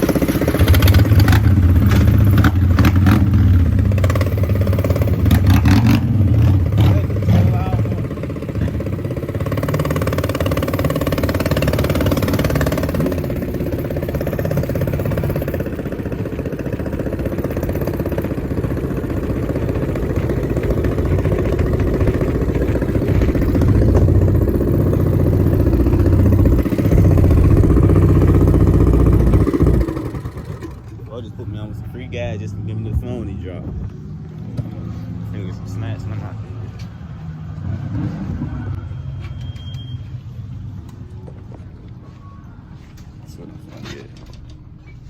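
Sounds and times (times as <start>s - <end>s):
car engine drone: 0.0s - 39.4s.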